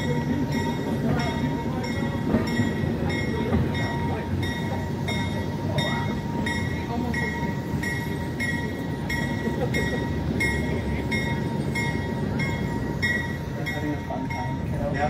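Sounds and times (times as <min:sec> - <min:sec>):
bell ringing: 0:00.0 - 0:15.0
train rumbling: 0:00.0 - 0:15.0.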